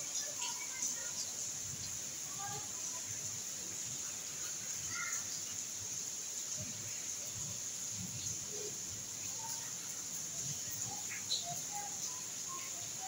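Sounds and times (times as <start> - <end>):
steady high hiss: 0.0 - 13.0
faint bird chirps: 8.2 - 13.0.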